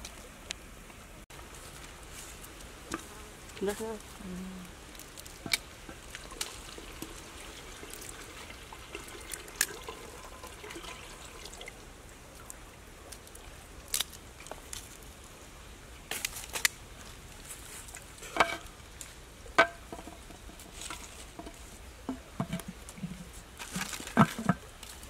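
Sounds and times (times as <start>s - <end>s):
water trickling into pot: 4.9s - 13.5s.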